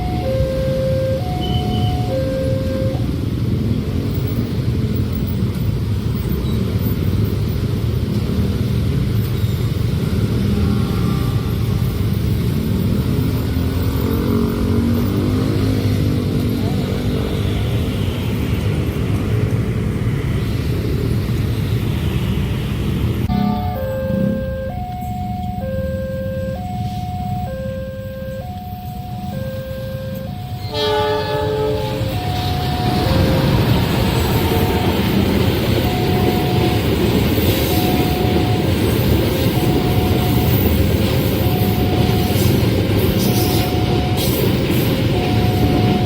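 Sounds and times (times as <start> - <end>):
short tune of steady tones: 0.0 - 3.1, 23.3 - 46.0
crossing warning alarm: 0.0 - 4.5, 23.3 - 46.0
train rumbling past: 0.0 - 46.0.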